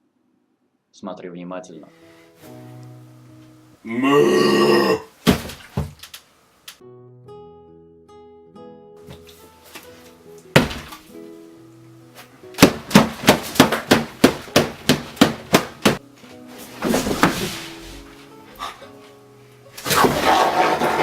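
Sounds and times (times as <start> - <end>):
soft plucked background music: 1.6 - 4.1, 6.8 - 20.3.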